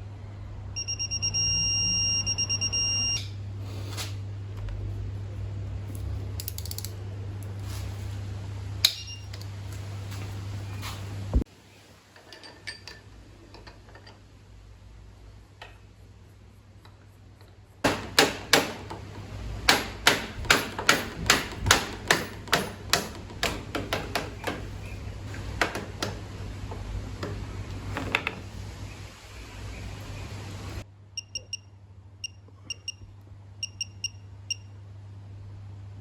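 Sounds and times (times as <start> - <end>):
hand tool clicking: 6.4 - 7.0.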